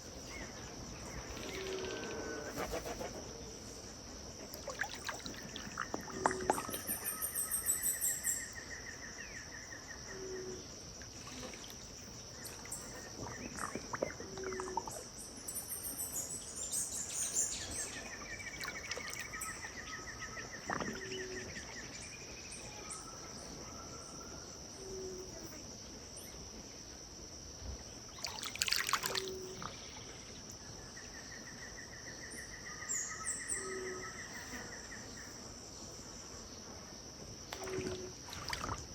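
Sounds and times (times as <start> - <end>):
high insect drone: 0.0 - 38.9
soft water sounds: 3.8 - 8.7, 10.6 - 24.4, 28.0 - 30.9, 36.8 - 38.9.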